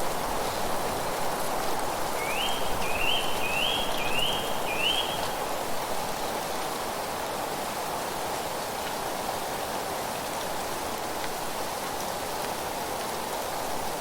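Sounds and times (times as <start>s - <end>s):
wind through leaves: 0.0s - 14.0s
bird calling rising notes: 2.2s - 5.3s.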